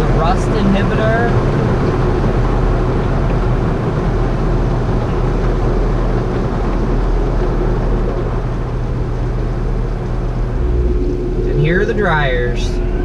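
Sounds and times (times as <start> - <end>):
low steady drone: 0.0 - 13.0
thin steady tone: 10.5 - 13.0.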